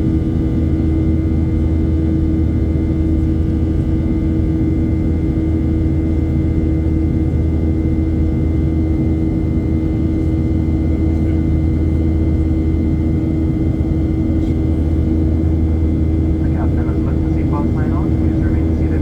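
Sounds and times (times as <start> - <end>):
constant hum tone: 0.0 - 19.0
jet engines droning: 10.0 - 19.0
air rushing in aircraft cabin: 16.3 - 19.0.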